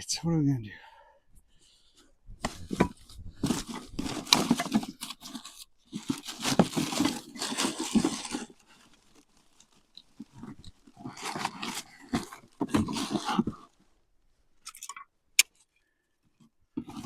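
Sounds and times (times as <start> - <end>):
crinkly material tearing: 3.4 - 13.9.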